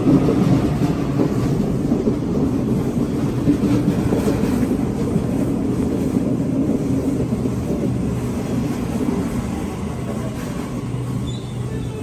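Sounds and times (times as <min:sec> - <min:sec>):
train passing with low rumble: 0:00.0 - 0:12.0.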